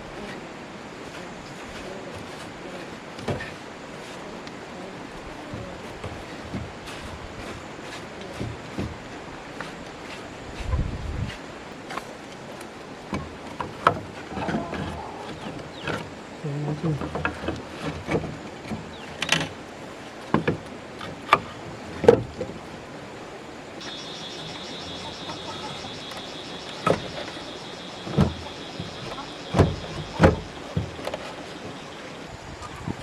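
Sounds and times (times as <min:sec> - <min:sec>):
steady high-pitched buzz: 0:23.8 - 0:33.0
knocks and thuds on wood: 0:26.8 - 0:31.8.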